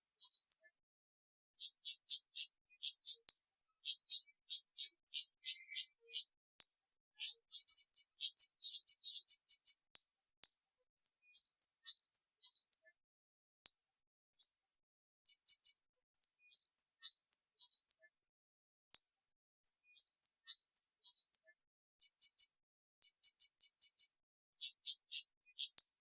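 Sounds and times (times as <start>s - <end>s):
recorded bird song: 0.0s - 0.8s, 1.5s - 13.0s, 13.6s - 18.2s, 18.9s - 26.0s.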